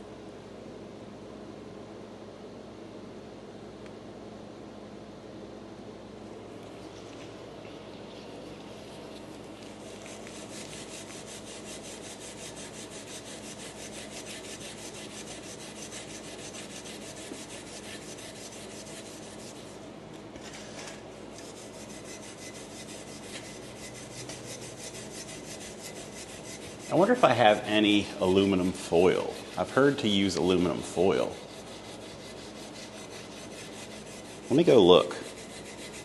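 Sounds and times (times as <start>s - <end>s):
steel wool scrubbing chrome: 8.2s - 19.9s, 21.2s - 36.0s.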